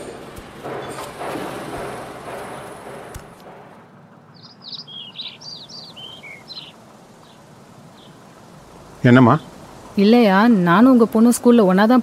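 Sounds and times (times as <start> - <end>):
outdoor background noise: 0.0 - 12.0
small bird chirping: 4.3 - 10.0.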